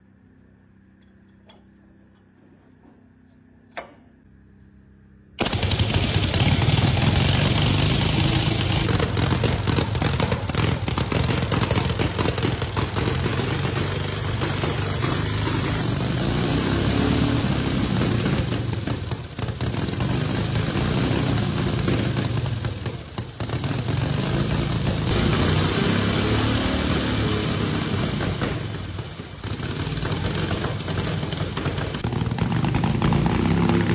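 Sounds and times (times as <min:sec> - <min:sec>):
sharp click: 0:03.7 - 0:04.1
rapid crackle of popping: 0:05.4 - 0:15.4
motorcycle engine running loud: 0:05.4 - 0:33.9.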